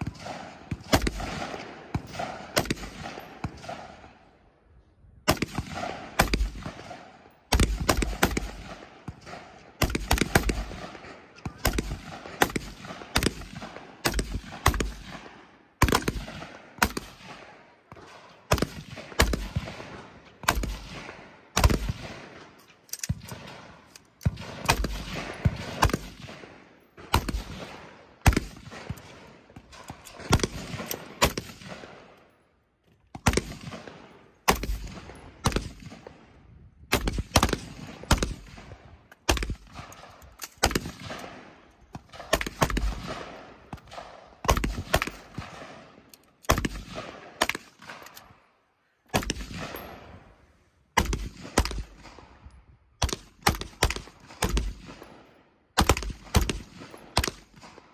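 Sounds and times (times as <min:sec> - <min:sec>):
gunshots with echo: 0:00.0 - 0:04.2, 0:05.3 - 0:32.2.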